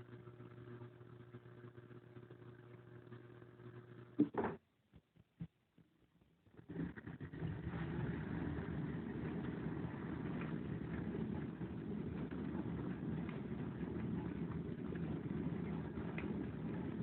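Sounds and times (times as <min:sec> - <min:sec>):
dishwasher pump and water hum: 0:06.7 - 0:17.0.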